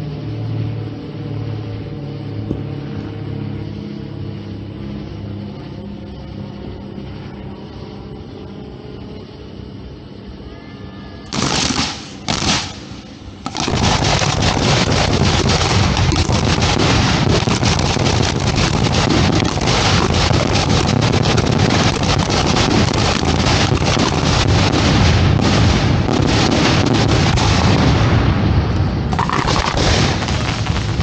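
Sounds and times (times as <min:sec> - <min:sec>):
barrage of firework shells: 0:11.3 - 0:31.0
fireworks bursting: 0:11.3 - 0:31.0.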